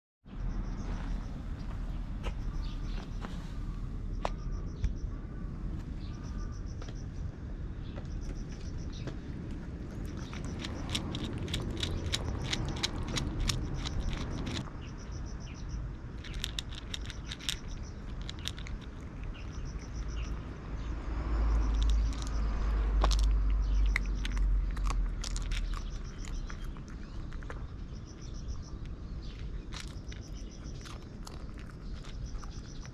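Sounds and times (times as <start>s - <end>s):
insect chirping: 0.3s - 9.3s, 9.9s - 32.9s
low rumble: 0.3s - 32.9s
cat crunching food: 9.5s - 14.7s, 16.1s - 20.5s, 21.5s - 32.9s.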